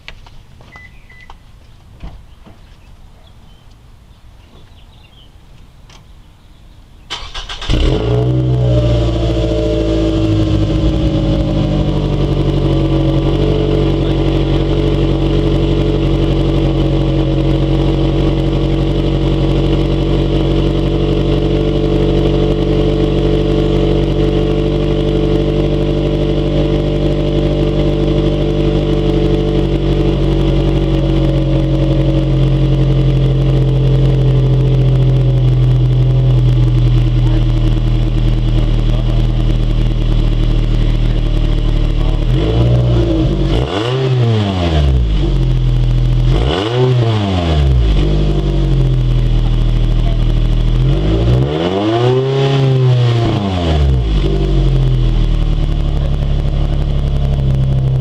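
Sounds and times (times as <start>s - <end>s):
car engine starting and idling: 7.1s - 58.0s.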